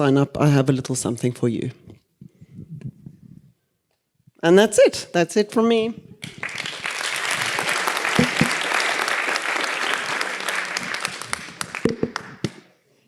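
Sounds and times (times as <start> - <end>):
audience applauding: 6.2 - 12.6.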